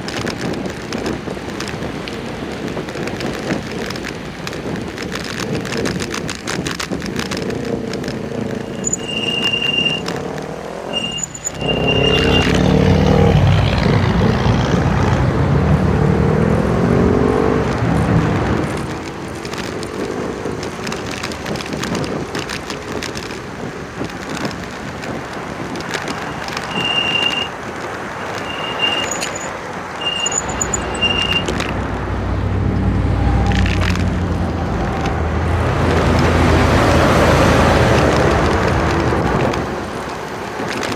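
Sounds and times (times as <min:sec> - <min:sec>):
motor vehicles passing: 0:00.0 - 0:40.9
wind and road noise: 0:00.0 - 0:40.9
short high electronic beeps: 0:08.7 - 0:10.0, 0:11.0 - 0:12.6, 0:28.2 - 0:31.6.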